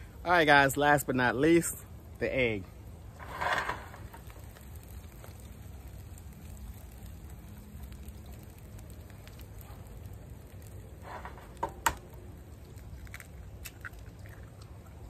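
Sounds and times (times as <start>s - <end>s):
fried rice sizzling in pan: 2.4s - 13.0s.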